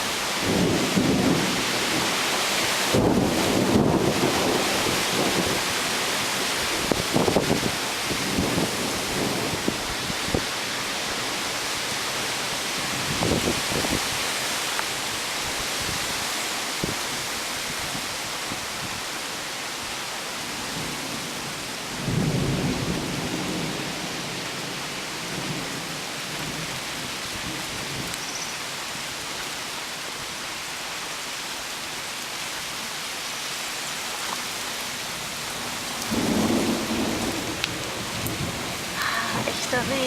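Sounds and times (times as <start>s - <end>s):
steady rain pouring: 0.0s - 40.0s
thunder rumbling: 0.4s - 2.2s, 2.9s - 5.8s, 36.0s - 40.0s.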